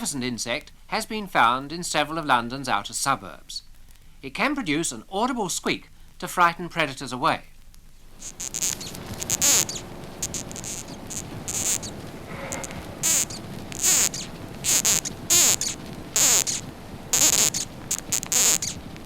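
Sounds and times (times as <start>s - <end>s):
moth squeaking: 8.2s - 19.0s.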